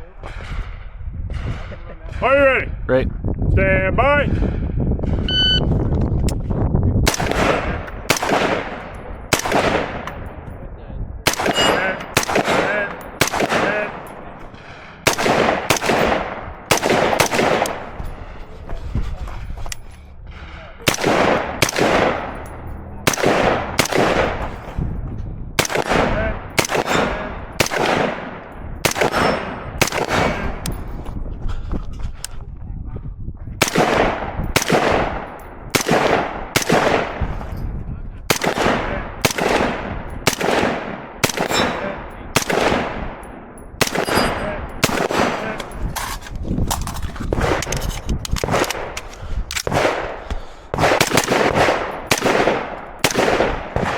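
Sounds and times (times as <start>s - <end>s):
rapid rifle shots with echo: 7.0s - 10.5s, 11.2s - 18.4s, 20.3s - 24.8s, 25.6s - 30.9s, 33.6s - 37.5s, 38.3s - 53.9s.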